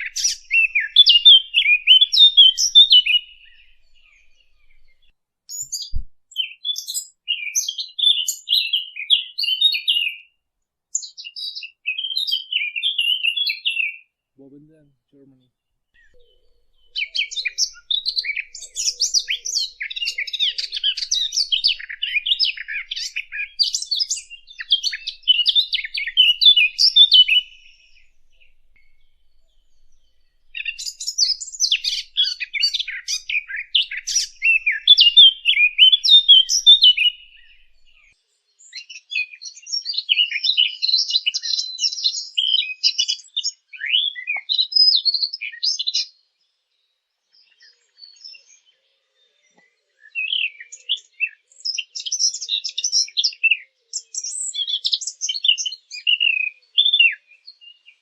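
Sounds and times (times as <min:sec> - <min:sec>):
songbird twittering and warbling: 0:00.0 - 0:10.2, 0:16.0 - 0:42.8.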